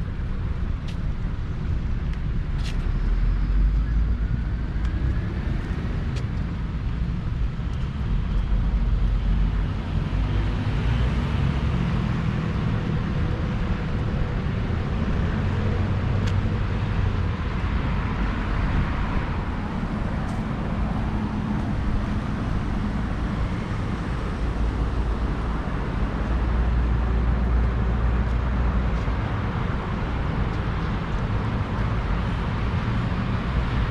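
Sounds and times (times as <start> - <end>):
city road traffic: 0.0 - 33.9
vehicles passing by: 0.0 - 33.9.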